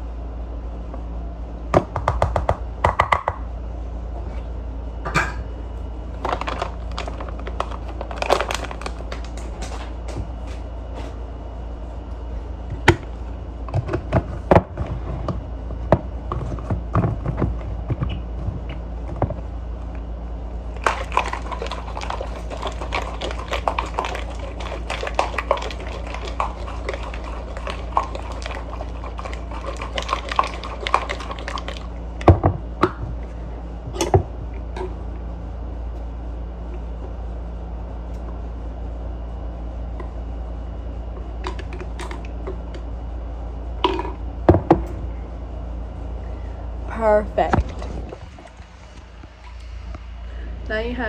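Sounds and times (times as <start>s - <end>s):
steady low hum: 0.0s - 51.0s
ice cubes rattling in a cup: 6.2s - 10.6s, 20.8s - 32.0s.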